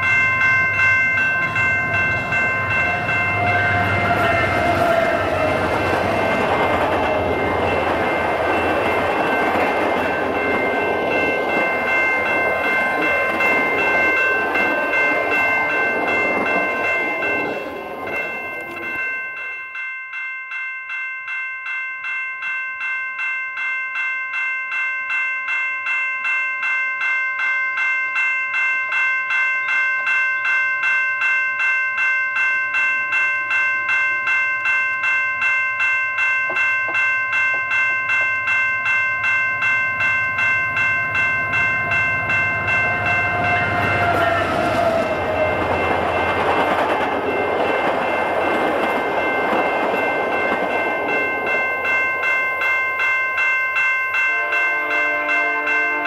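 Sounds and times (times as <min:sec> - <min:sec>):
train rumbling by: 0:00.0 - 0:19.2, 0:39.6 - 0:53.1
train horn: 0:02.7 - 0:06.5, 0:43.1 - 0:45.8, 0:54.3 - 0:56.0.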